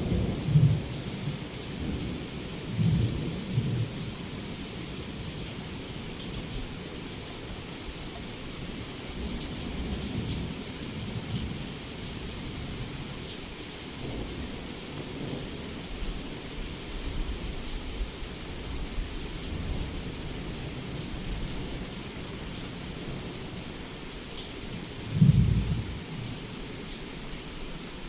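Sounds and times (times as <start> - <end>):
low rolling thunder: 0.0 - 4.0, 25.0 - 26.4
heavy rain falling: 0.0 - 28.0.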